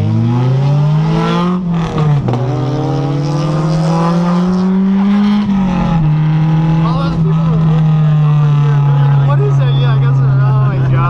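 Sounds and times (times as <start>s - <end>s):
sports car engine accelerating: 0.0s - 11.0s.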